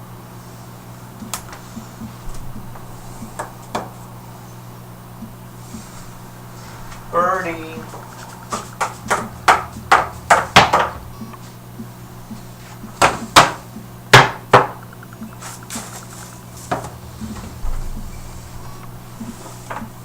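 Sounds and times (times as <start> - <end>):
sharp knocks and clatters: 7.8 - 20.0.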